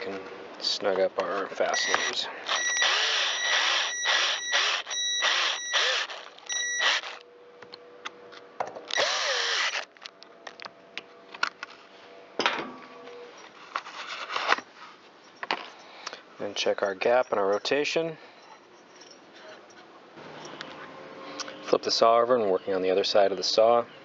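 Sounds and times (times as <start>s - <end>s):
power screwdriver whining: 1.8s - 7.2s, 8.9s - 9.9s.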